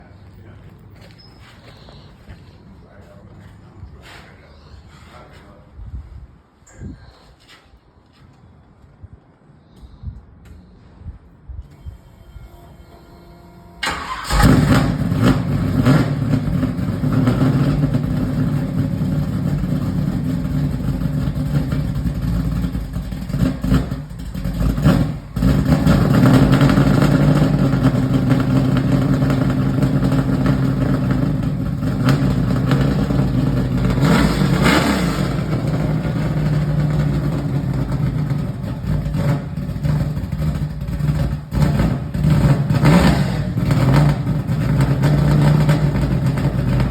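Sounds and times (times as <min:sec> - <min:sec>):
car engine starting and revving: 0:12.6 - 0:46.9.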